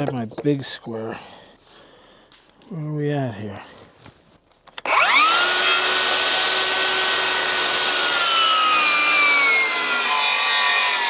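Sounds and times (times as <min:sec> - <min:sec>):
circular saw cutting board: 0:04.8 - 0:11.0.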